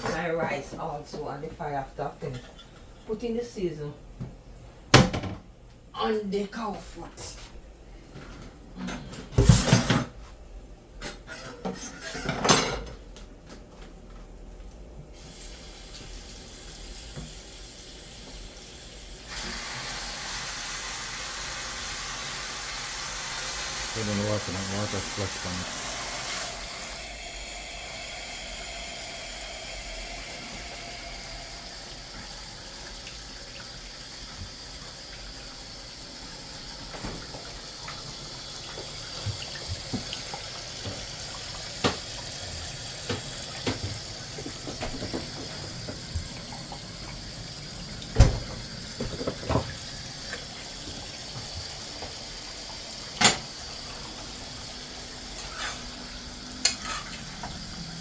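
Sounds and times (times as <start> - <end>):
tap water filling a pot: 15.2 - 58.0
pots and utensils knocking: 49.0 - 49.7, 53.2 - 53.5.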